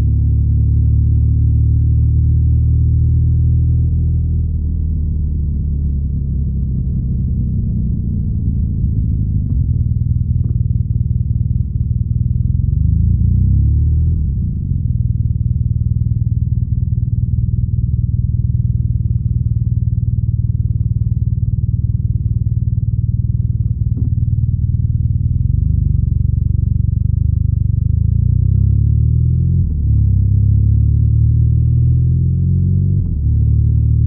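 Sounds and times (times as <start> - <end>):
motorcycle engine and exhaust: 0.0 - 34.0.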